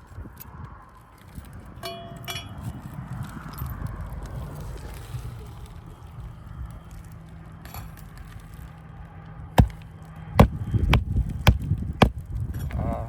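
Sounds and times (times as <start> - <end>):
hammer striking a nail: 9.6 - 9.8, 10.4 - 12.2.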